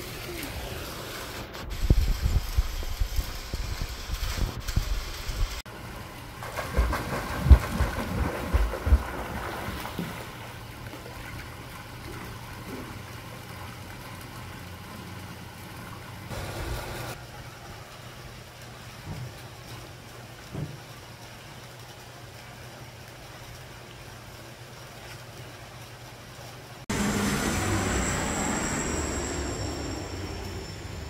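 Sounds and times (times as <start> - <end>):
wind buffeting microphone: 1.6 - 5.6
low engine hum: 26.9 - 31.0.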